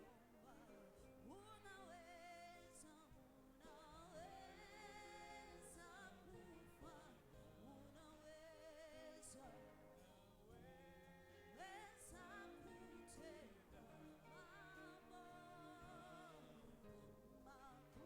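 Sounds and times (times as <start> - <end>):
faint music with singing: 0.0 - 18.0.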